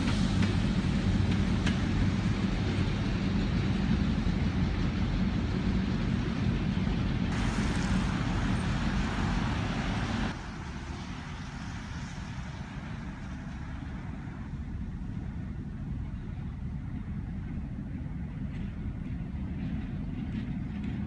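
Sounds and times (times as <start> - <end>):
traffic rumble: 0.0 - 21.0
tyre hiss: 7.3 - 10.6.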